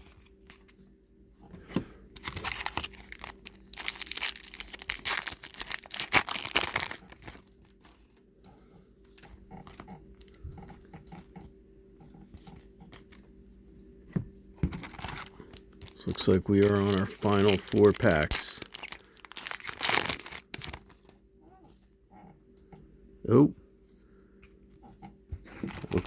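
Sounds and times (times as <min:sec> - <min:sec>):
wrapper tearing and crinkling: 0:02.1 - 0:08.2, 0:14.8 - 0:21.2, 0:25.5 - 0:26.0.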